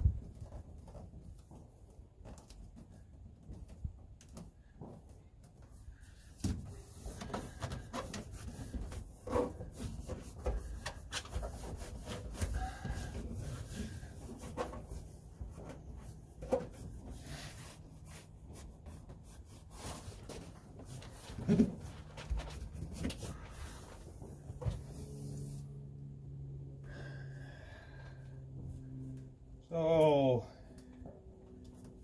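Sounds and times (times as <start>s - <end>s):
deadener sheets rubbing and crinkling: 5.7s - 25.8s.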